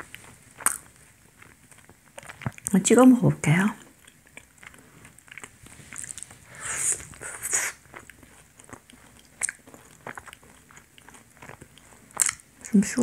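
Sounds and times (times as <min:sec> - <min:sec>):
wet mouth clicks chewing: 0:00.0 - 0:02.8, 0:03.5 - 0:13.0.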